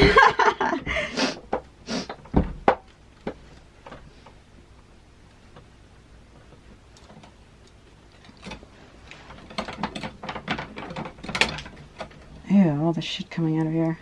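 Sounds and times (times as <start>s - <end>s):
lock hardware rattling: 9.3s - 12.4s.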